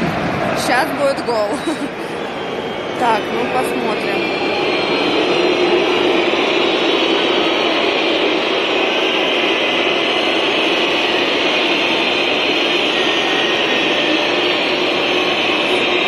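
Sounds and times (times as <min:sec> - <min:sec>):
crowd din of voices: 0:00.0 - 0:09.6.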